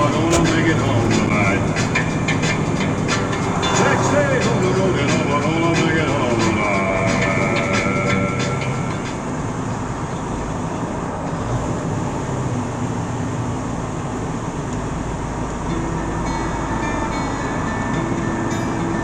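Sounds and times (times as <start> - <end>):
road and engine rumble: 0.0 - 19.0.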